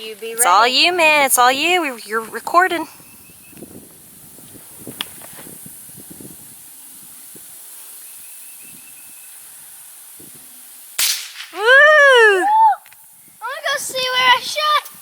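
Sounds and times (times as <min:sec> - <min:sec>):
steady high hiss: 0:00.0 - 0:15.0
faint rapid high chirping: 0:06.8 - 0:09.7.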